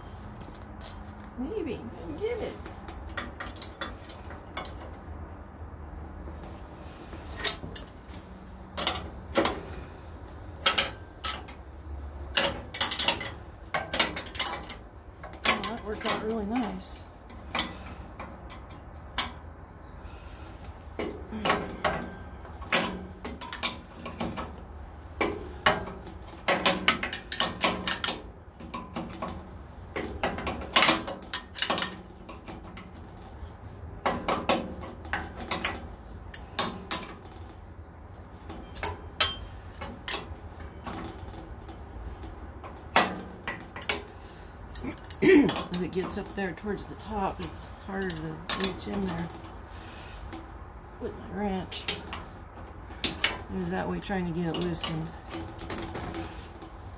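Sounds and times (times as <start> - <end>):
wrench and bolts clinking: 42.1 - 49.5.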